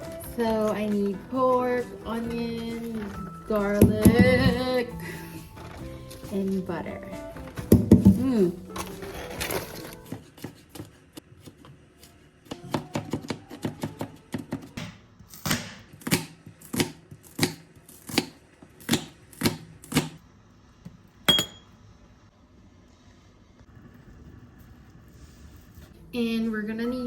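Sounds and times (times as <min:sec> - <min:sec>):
knife chopping on cutting board: 0:12.5 - 0:20.2
sharp clink: 0:21.3 - 0:21.7.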